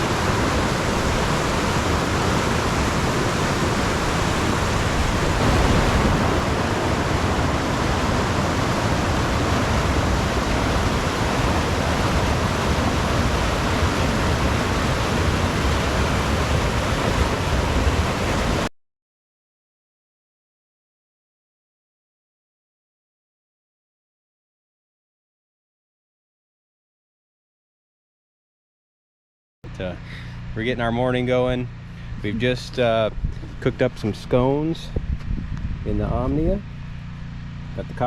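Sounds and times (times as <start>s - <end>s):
mountain stream rushing: 0.0s - 18.7s.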